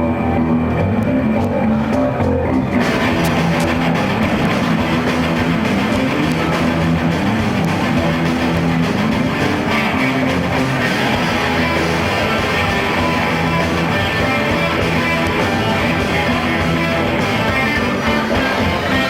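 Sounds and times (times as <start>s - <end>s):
bass: 0.0s - 19.0s
distorted electric guitars: 0.0s - 19.0s
drums: 0.0s - 19.0s.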